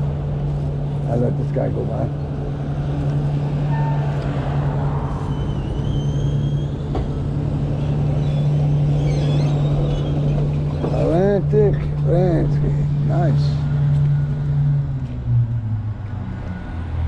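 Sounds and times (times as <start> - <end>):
e-bike hum and road noise: 0.0 - 17.0
vehicle passing by: 11.0 - 17.0.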